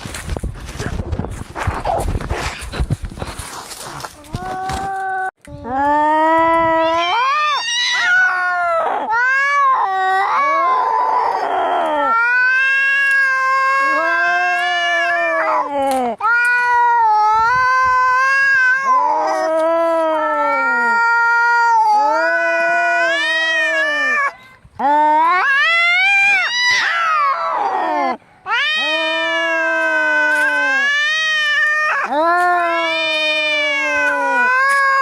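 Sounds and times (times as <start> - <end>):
cats yowling: 6.8 - 24.4, 25.2 - 35.0.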